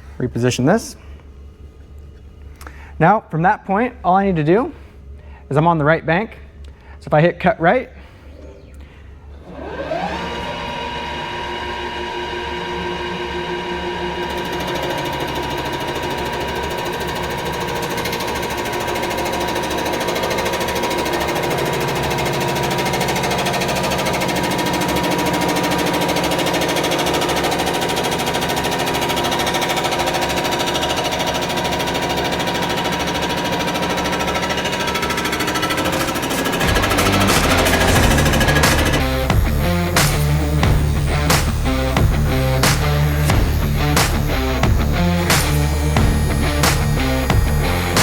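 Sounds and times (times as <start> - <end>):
machine spindle whine: 8.2 - 48.0
cutter chatter on metal: 28.2 - 48.0.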